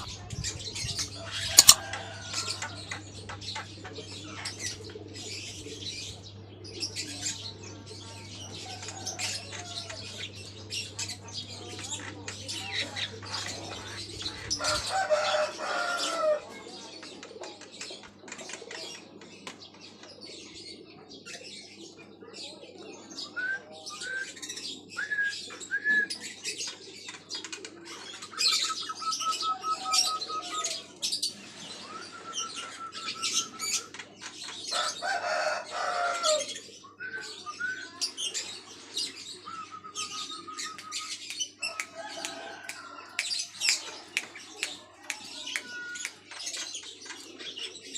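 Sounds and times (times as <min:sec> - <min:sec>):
sharp clicks: 0:01.6 - 0:01.8.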